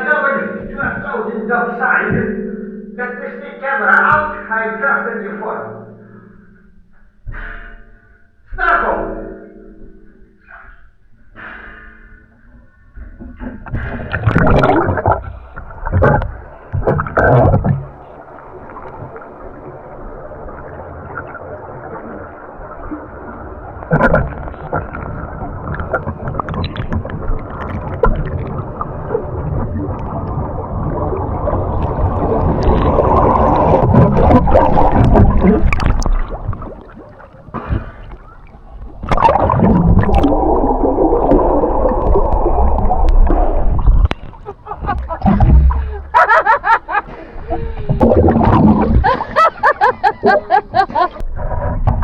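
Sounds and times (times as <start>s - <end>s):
underwater air bubbling: 13.4s - 52.0s.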